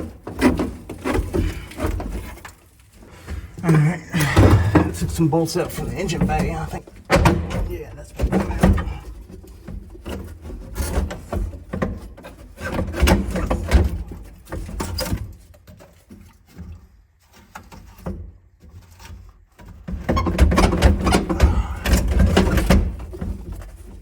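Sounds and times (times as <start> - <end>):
tools knocking and clanking on metal: 4.2 - 15.1, 20.0 - 23.9.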